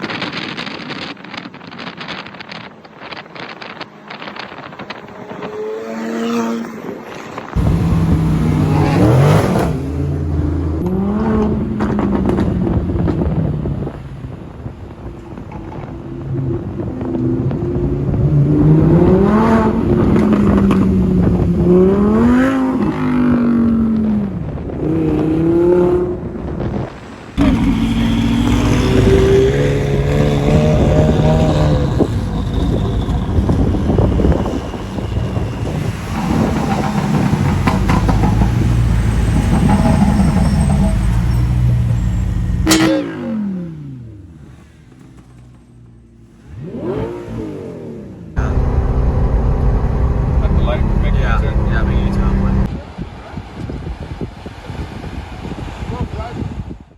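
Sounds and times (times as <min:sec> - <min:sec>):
supercar engine accelerating: 0:03.7 - 0:13.8, 0:27.4 - 0:45.5, 0:46.4 - 0:52.7.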